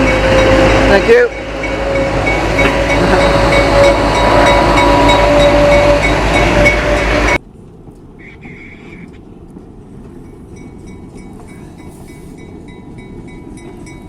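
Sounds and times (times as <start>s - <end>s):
steady whining tones: 0.0s - 7.4s
train rumbling on track: 0.0s - 14.0s.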